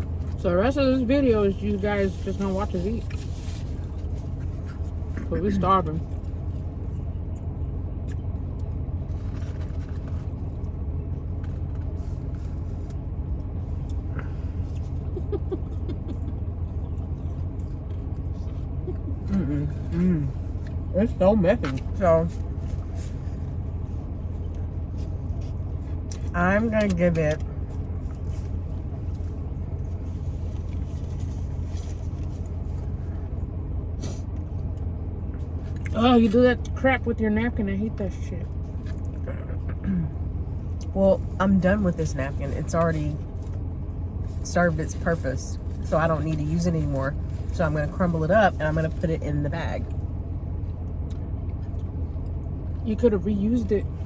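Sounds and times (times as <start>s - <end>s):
car engine idling: 0.0s - 54.0s
faint small rustles: 1.9s - 5.2s, 22.3s - 26.3s, 27.6s - 33.3s.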